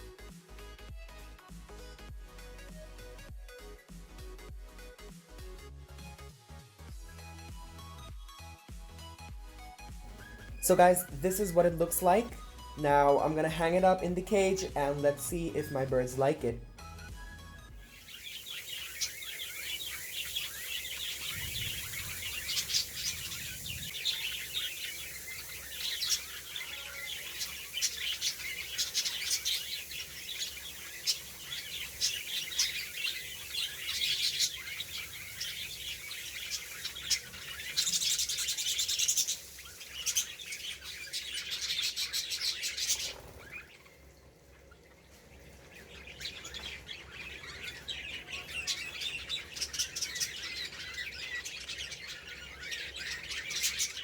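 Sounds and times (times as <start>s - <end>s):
budgerigars chirping: 10.1s - 43.9s, 45.4s - 54.0s.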